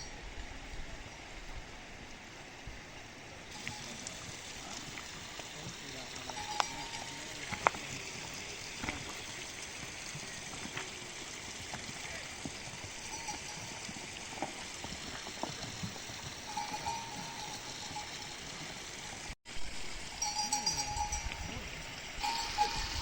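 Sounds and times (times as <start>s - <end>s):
steady background hiss: 0.0s - 9.0s
small bells tinkling: 3.5s - 9.4s, 12.6s - 19.3s, 20.1s - 23.0s.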